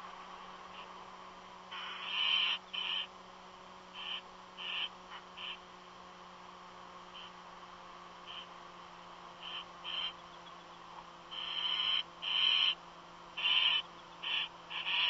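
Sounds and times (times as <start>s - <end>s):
steady low hum: 0.0s - 15.0s
raspy bird calls: 0.7s - 1.0s, 1.7s - 3.2s, 3.9s - 5.7s, 7.1s - 7.5s, 8.2s - 8.6s, 9.3s - 15.0s.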